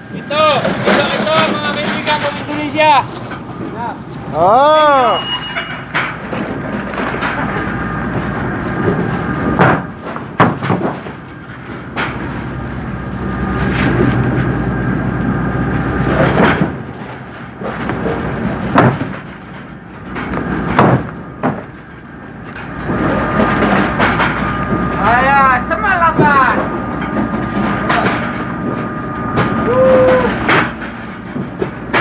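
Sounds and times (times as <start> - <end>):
boat machinery whining: 0.0 - 10.4, 11.0 - 32.0
sharp knocks and clanks: 5.3 - 12.6, 16.1 - 25.0, 26.0 - 32.0.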